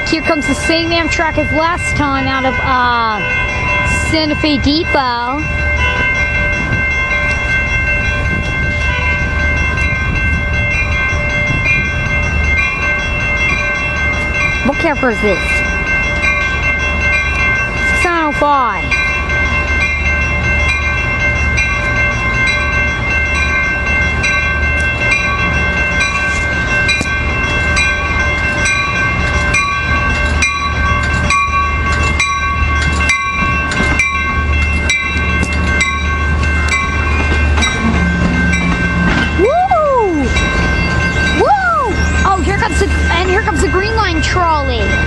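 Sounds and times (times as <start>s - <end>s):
diesel locomotive rumbling: 0.0s - 45.0s
wheels clicking over rail joints: 21.6s - 45.0s.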